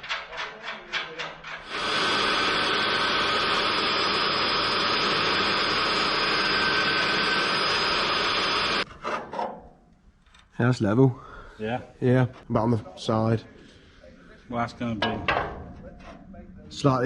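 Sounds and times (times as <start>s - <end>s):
magnetic drill whining: 1.7s - 8.9s.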